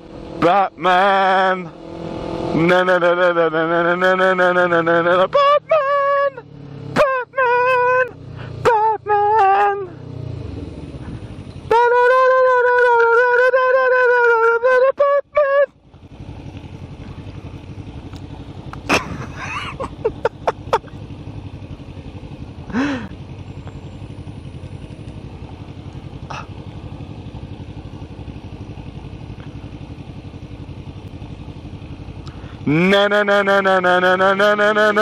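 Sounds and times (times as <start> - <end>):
motorcycle engine running: 0.0 - 35.0
sharp pops and clicks: 18.0 - 18.9.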